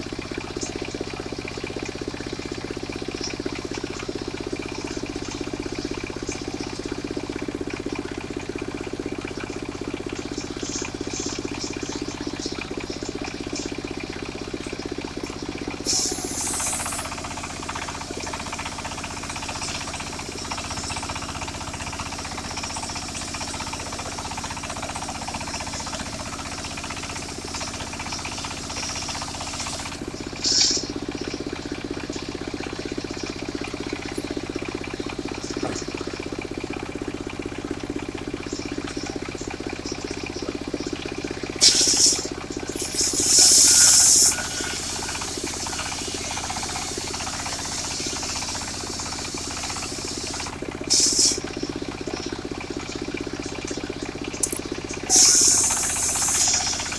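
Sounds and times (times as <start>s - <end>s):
circular sawmill running: 0.0s - 56.9s
saw blade cutting wood: 15.8s - 17.1s, 27.2s - 30.9s, 41.6s - 48.5s, 54.4s - 56.9s.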